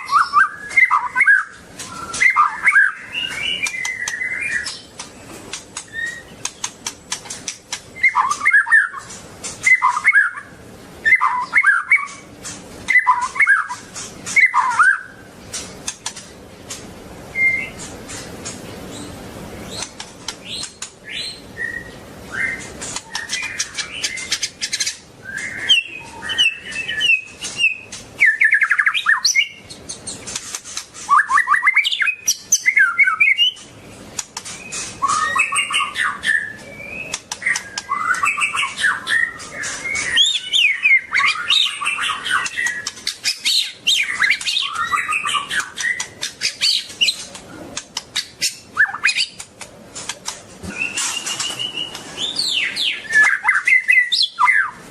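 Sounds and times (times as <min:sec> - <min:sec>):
bird singing whistled phrases: 0:00.0 - 0:04.9, 0:05.9 - 0:06.3, 0:08.0 - 0:09.0, 0:09.6 - 0:12.2, 0:12.9 - 0:15.2, 0:17.3 - 0:17.8, 0:20.6 - 0:29.7, 0:31.1 - 0:33.6, 0:34.6 - 0:47.2, 0:48.2 - 0:49.4, 0:50.7 - 0:54.8
sharp bird clicks: 0:00.1 - 0:10.4, 0:11.2 - 0:16.9, 0:17.5 - 0:19.1, 0:19.7 - 0:21.3, 0:22.4 - 0:54.7.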